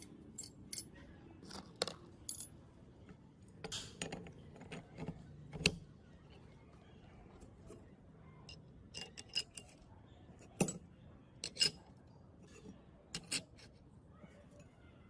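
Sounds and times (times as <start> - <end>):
metal tools clicking and clinking: 0.0 - 2.5, 3.5 - 5.8, 8.5 - 9.8, 11.4 - 13.7.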